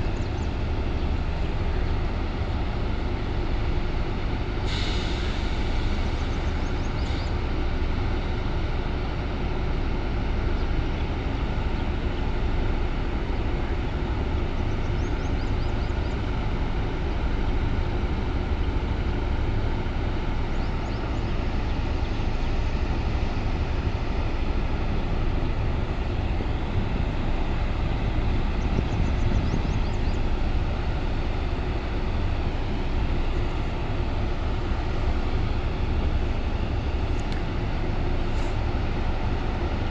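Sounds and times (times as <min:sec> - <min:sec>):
drilling rig engine drone: 0:00.0 - 0:39.9.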